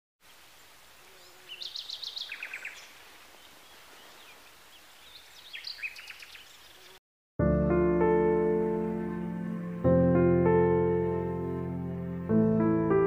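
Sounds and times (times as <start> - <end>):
faint outdoor hiss: 0.2 - 7.0
small birds chirping: 0.2 - 7.0.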